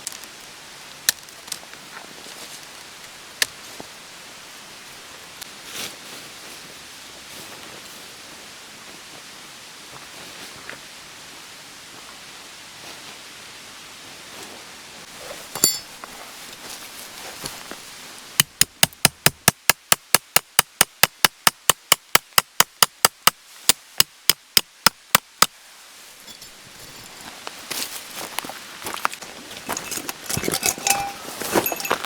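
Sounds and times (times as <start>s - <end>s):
rapid hammering: 18.4s - 23.4s.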